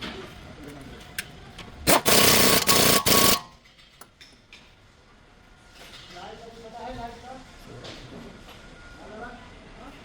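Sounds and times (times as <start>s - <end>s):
power tool running: 1.9s - 3.5s.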